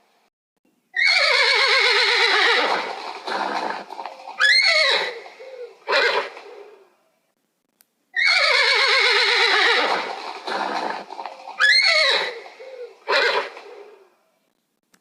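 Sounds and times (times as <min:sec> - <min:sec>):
horse whinnying: 0:01.0 - 0:06.8, 0:08.2 - 0:14.1.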